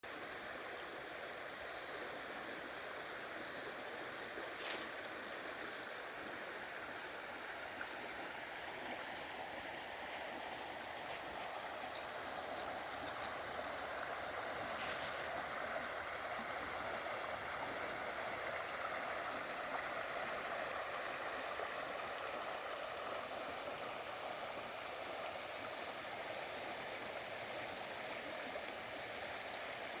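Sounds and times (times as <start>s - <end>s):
creek water rushing: 0.0s - 30.0s
faint ticks: 10.4s - 13.4s.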